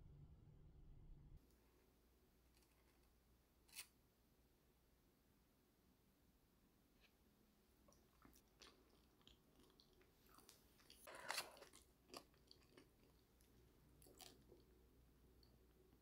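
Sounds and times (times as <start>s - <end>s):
chewing with soft crunches: 7.8s - 15.9s.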